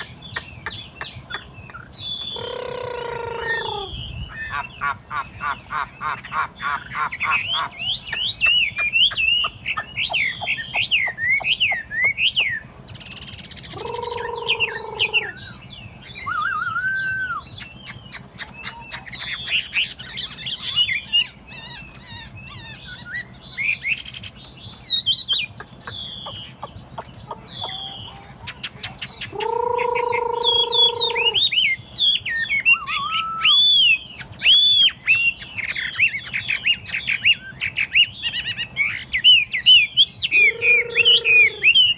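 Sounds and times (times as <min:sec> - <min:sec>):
bird singing whistled phrases: 0:01.7 - 0:04.3, 0:13.2 - 0:24.2, 0:29.0 - 0:41.9.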